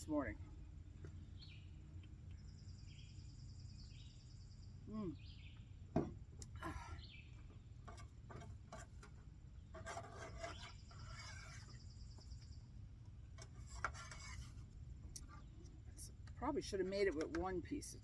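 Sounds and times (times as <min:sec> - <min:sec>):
cutlery scraping on a plate: 0:09.8 - 0:11.8, 0:13.4 - 0:14.6.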